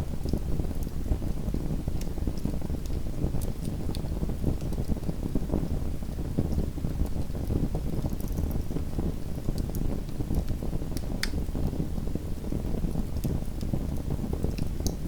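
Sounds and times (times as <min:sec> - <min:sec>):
fire crackling: 0:06.3 - 0:15.0.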